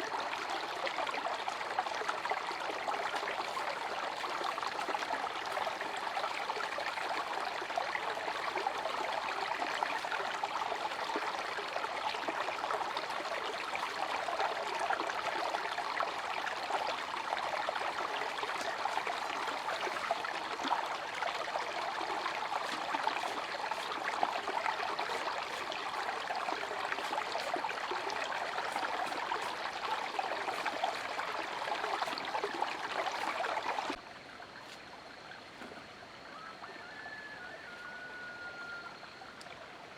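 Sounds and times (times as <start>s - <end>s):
water running: 13.0s - 34.0s.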